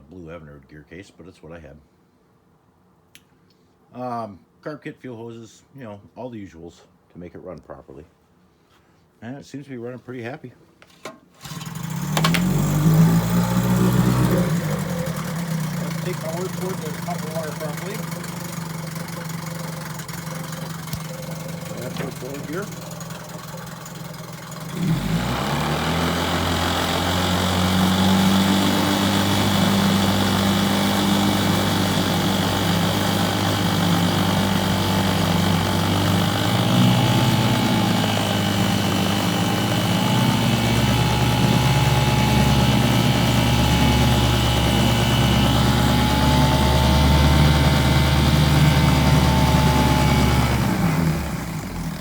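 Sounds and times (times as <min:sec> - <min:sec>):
outboard motor running: 0:11.4 - 0:52.0.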